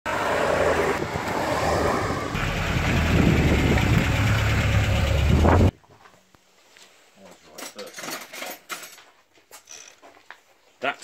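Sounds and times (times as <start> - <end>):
car engine driving: 0.1 - 5.7
car engine idling: 2.3 - 5.7.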